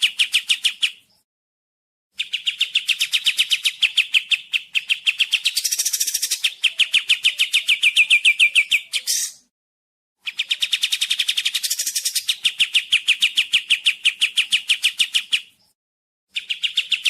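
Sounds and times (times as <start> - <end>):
bird singing rapid chirps: 0.0 - 1.2, 2.1 - 9.5, 10.2 - 17.0.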